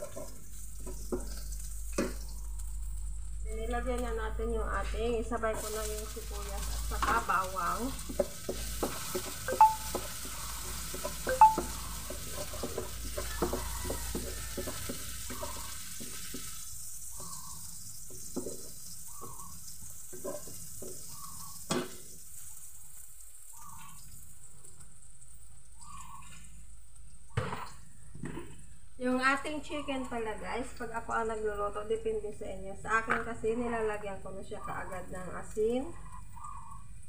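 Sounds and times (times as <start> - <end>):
food sizzling in hot oil: 0.0 - 27.9
spatula clinking against pan: 8.2 - 16.1.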